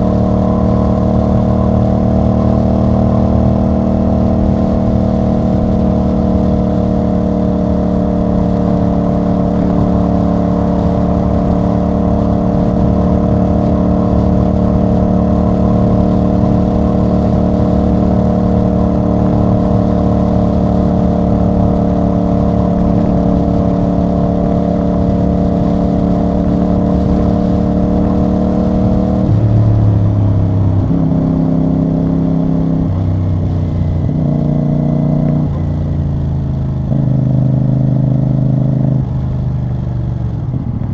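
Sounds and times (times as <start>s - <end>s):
motorcycle engine and exhaust: 0.0s - 40.9s.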